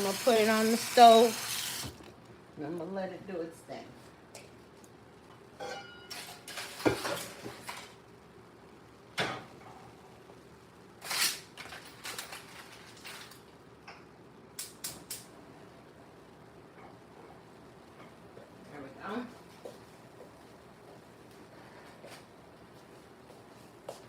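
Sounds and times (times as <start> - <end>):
dishes and pots clinking: 5.6 - 7.9.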